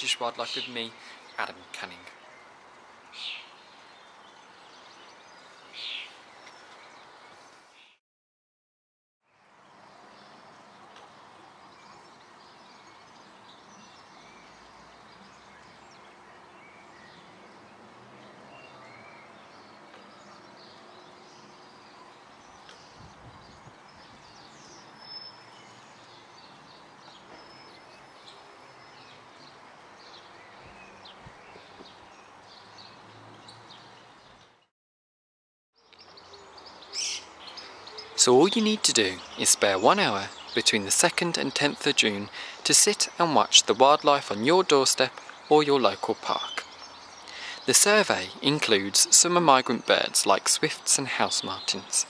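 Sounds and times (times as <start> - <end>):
background hiss: 0.0 - 8.0, 36.0 - 52.0
small birds chirping: 0.0 - 8.0, 9.3 - 34.7, 35.8 - 52.0.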